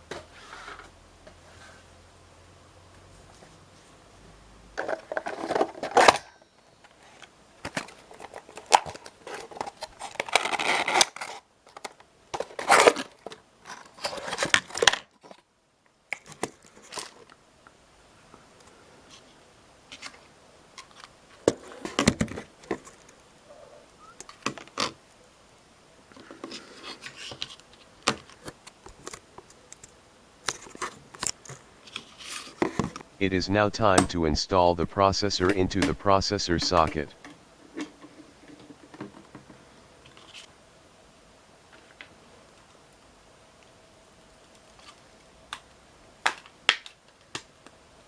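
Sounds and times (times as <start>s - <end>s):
cardboard and plastic rustling: 4.8s - 6.2s, 6.9s - 15.4s.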